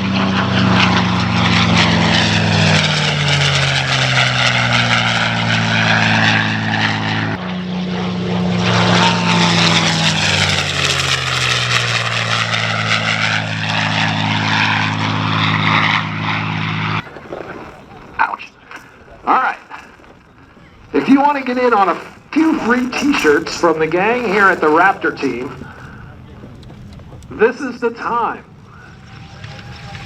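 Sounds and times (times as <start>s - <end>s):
propeller plane fly-by: 0.0s - 30.0s.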